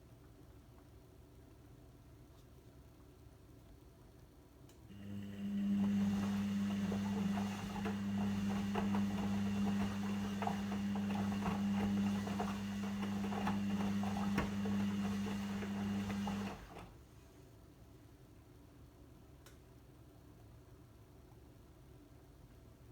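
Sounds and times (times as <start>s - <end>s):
washing machine drain pump humming: 4.9s - 17.0s.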